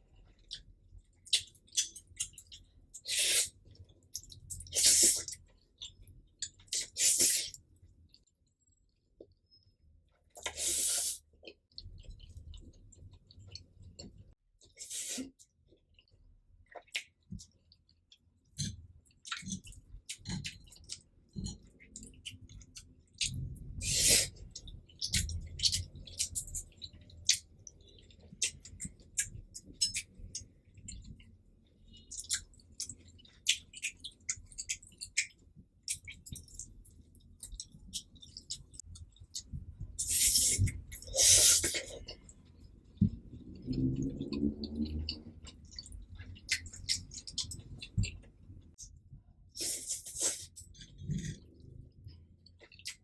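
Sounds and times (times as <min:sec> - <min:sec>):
wet chewing mouth sounds: 0:10.4 - 0:48.9.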